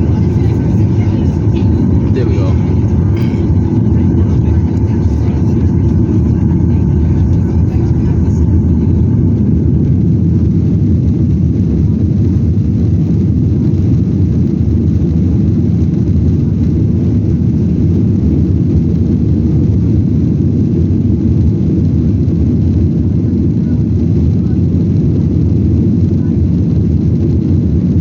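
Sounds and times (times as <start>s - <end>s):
rushing air: 0.0s - 6.7s
jet engines roaring: 0.0s - 28.0s.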